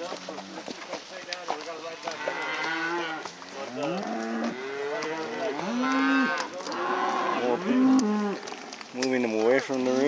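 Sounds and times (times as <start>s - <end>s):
cattle mooing and bawling: 2.2s - 8.8s.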